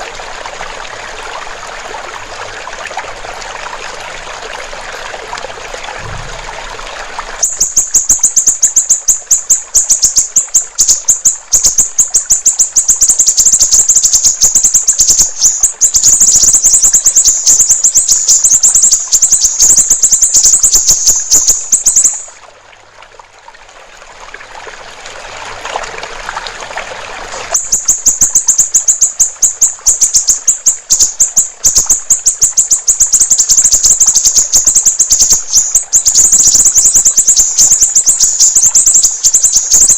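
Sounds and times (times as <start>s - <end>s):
trickling water: 0.0s - 39.9s
bird chattering trill: 7.4s - 22.3s, 27.6s - 39.9s.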